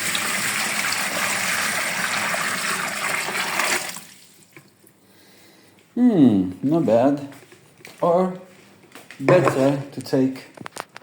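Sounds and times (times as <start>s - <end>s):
water pouring into container: 0.0s - 4.8s.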